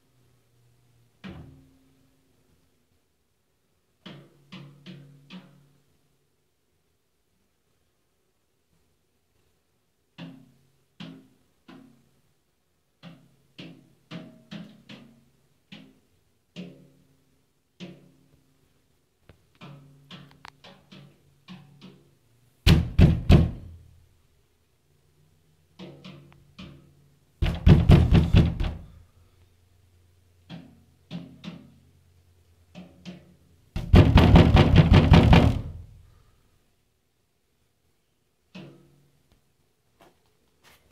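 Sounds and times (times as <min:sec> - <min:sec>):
bird knocking on metal: 0:33.8 - 0:35.8.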